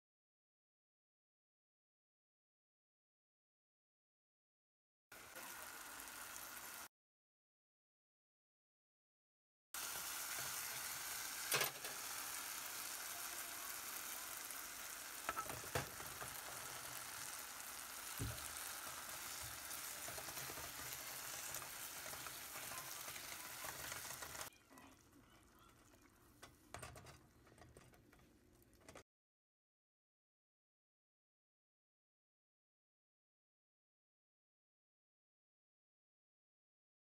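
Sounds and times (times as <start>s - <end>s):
sauce sizzling in a hot pan: 5.2s - 6.9s, 9.8s - 24.5s.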